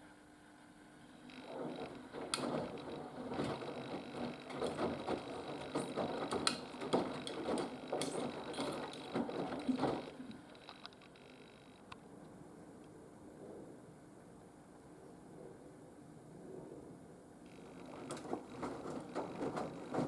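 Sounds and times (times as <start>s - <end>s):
laundry tumbling knocks and swishes: 1.4s - 10.4s, 17.6s - 20.0s
washing machine drum turning: 1.4s - 10.4s, 17.6s - 20.0s.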